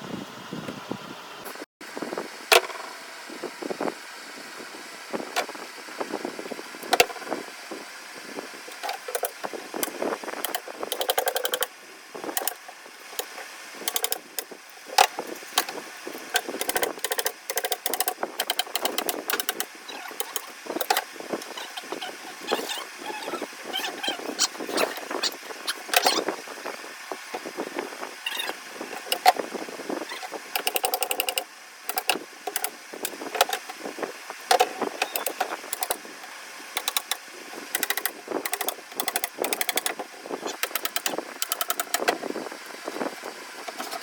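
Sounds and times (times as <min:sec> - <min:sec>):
steady background hum: 0:00.0 - 0:44.0
sharp knocks and clicks: 0:10.4 - 0:11.7, 0:13.9 - 0:22.8, 0:30.6 - 0:33.7, 0:34.5 - 0:36.0, 0:36.8 - 0:42.2.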